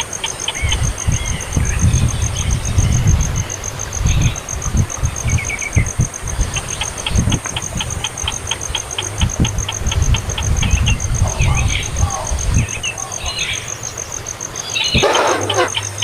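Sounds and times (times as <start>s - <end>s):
pulsing insect-like trill: 13.8s - 16.0s
baby bird chirping: 14.8s - 16.0s.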